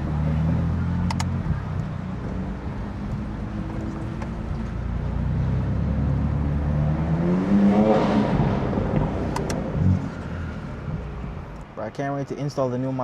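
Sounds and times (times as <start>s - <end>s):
car engine accelerating: 0.0s - 11.6s
sharp clicks: 1.1s - 1.9s, 9.3s - 9.6s.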